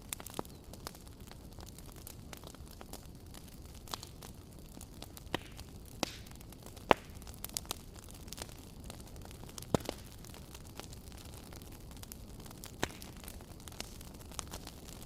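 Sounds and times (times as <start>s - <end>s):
fire hiss and rumble: 0.0s - 15.0s
wood fire crackling and popping: 0.0s - 15.0s.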